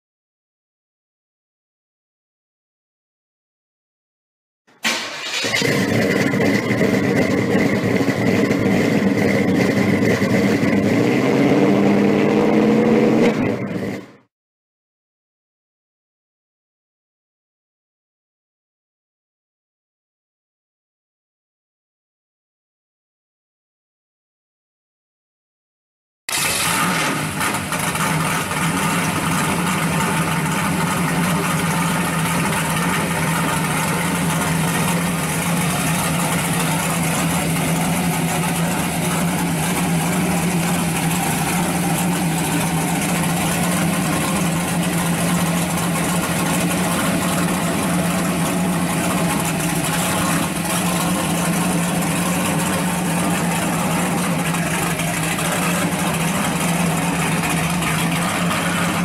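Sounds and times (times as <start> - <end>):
car engine idling: 4.8 - 14.2, 26.3 - 59.0.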